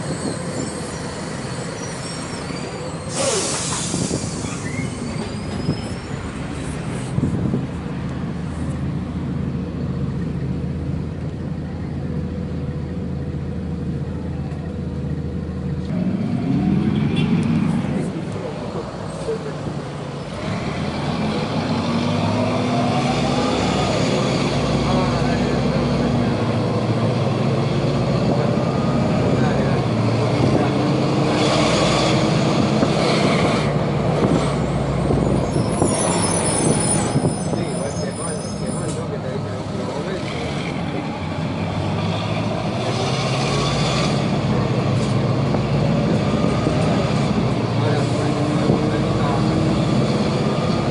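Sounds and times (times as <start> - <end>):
diesel engine running: 2.8 - 50.9
air hissing: 3.1 - 5.0.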